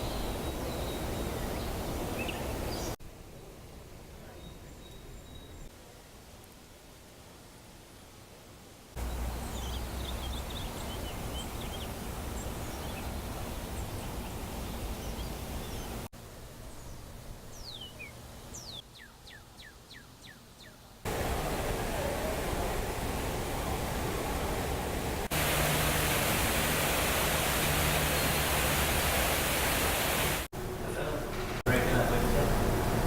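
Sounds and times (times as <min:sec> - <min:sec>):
small birds chirping: 0:09.0 - 0:21.0
steady rushing noise: 0:21.1 - 0:30.5.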